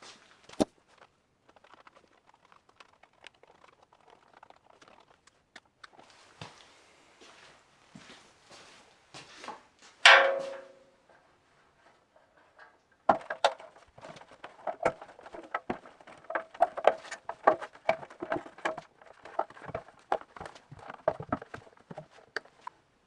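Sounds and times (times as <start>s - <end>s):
metal clang: 10.1s - 10.9s
quick irregular knocks and clicks: 13.1s - 22.7s.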